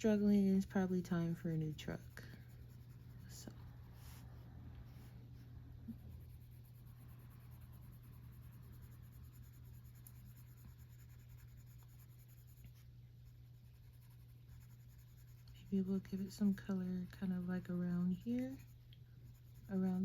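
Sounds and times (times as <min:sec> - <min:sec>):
steady low hum: 0:00.0 - 0:20.0
coloring scratching on paper: 0:00.2 - 0:20.0.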